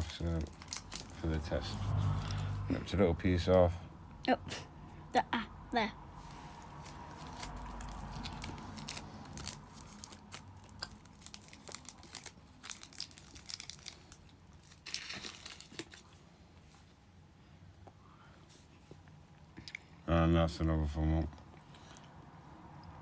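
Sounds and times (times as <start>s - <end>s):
candy wrapper crinkling: 0.0s - 1.5s, 6.5s - 16.2s.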